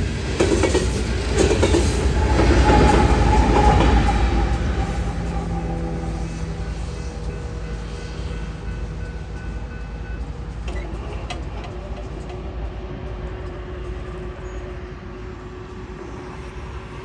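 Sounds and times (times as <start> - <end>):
train cars rumbling on rails: 0.0 - 17.0.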